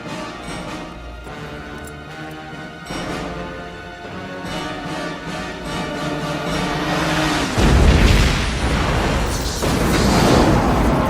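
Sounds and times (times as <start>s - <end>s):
orchestral music: 0.0s - 11.0s
deep rumbling explosion: 7.1s - 11.0s.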